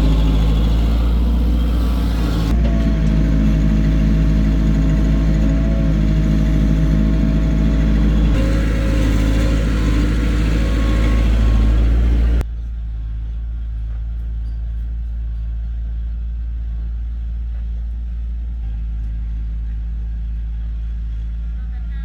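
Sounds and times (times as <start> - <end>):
heavy diesel engine running: 0.0 - 13.7
low engine hum: 0.0 - 22.0.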